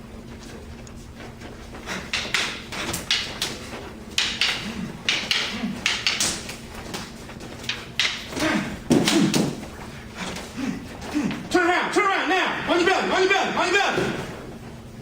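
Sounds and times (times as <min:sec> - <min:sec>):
bodies clashing with slaps: 0:01.9 - 0:11.4.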